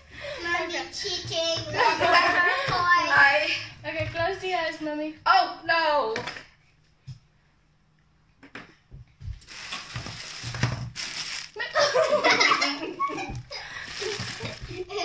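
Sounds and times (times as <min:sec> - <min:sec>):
cardboard rustling and scraping: 0:09.3 - 0:11.6, 0:13.2 - 0:15.0.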